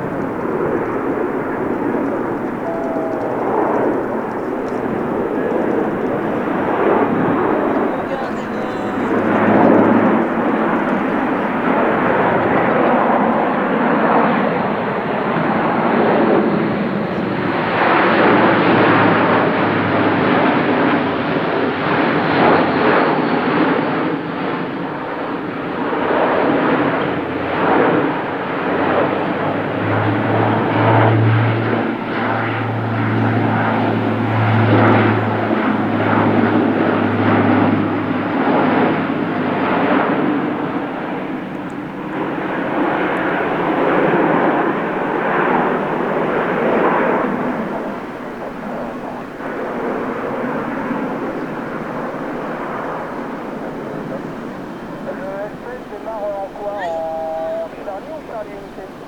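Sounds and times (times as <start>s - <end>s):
low propeller hum: 0.0s - 59.0s
turboprop engines roaring: 0.0s - 59.0s.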